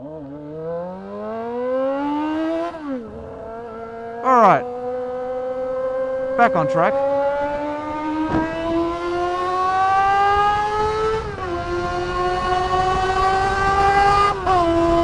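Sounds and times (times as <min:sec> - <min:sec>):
unmuffled motorcycle engine accelerating: 0:00.0 - 0:15.0.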